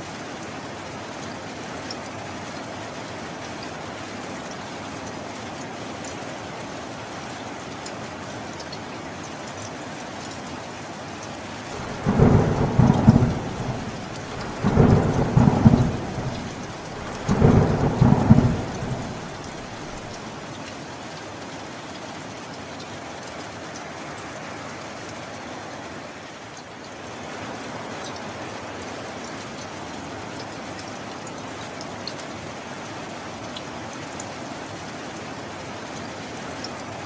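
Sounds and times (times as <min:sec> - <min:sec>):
steady rain: 0:00.0 - 0:37.0
thunder rumbles: 0:11.7 - 0:20.3.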